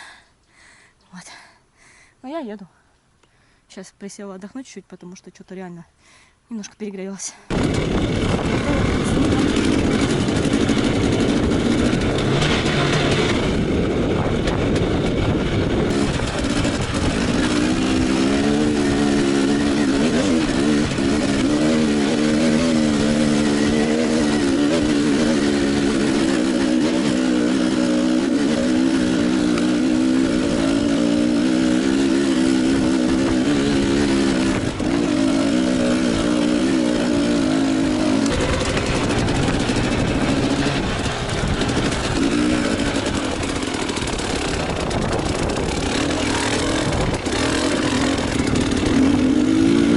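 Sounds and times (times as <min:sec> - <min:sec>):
motorcycle engine running: 0:07.5 - 0:49.9.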